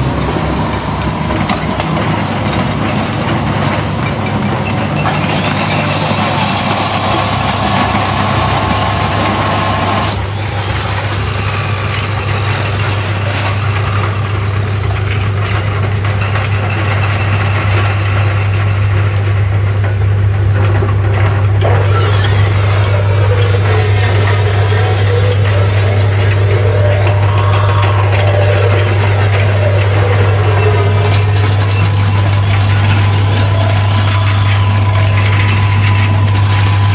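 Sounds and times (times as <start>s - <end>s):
broad rushing machinery noise: 0.0s - 36.9s
low machinery hum: 0.0s - 36.9s.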